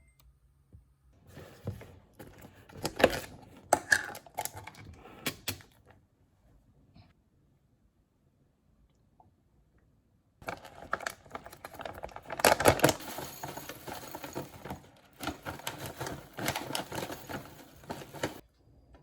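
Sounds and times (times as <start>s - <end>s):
clicks taps and rustles: 10.4s - 18.4s.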